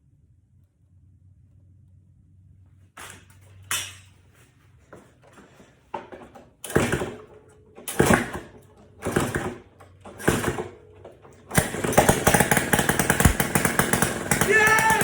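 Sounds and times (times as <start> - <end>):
motorcycle engine turning over: 4.9 - 15.0
engine running with popping exhaust: 6.6 - 15.0.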